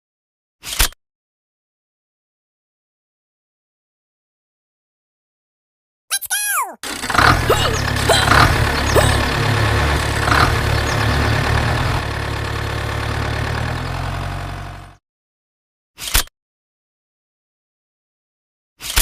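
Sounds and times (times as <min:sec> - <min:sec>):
engine rumbling: 0:06.8 - 0:15.0.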